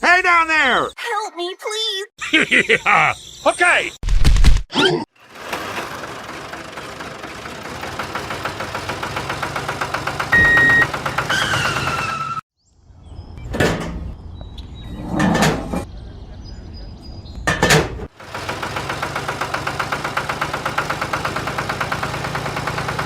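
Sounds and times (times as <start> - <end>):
short steady beep: 10.4 - 10.9.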